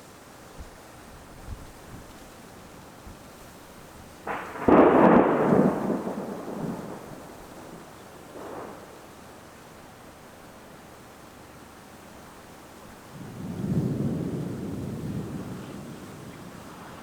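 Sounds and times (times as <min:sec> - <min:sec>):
thunder clap and rumble: 0:04.3 - 0:09.2, 0:13.1 - 0:17.0.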